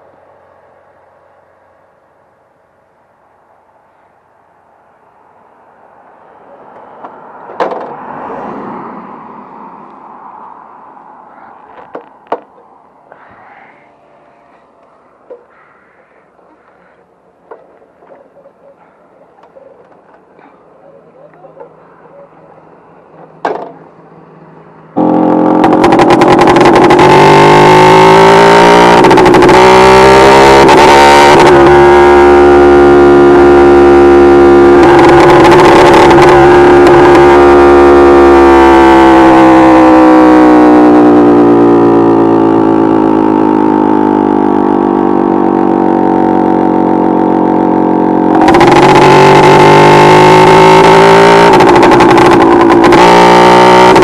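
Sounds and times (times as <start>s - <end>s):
moped engine revving high: 25.0s - 54.0s.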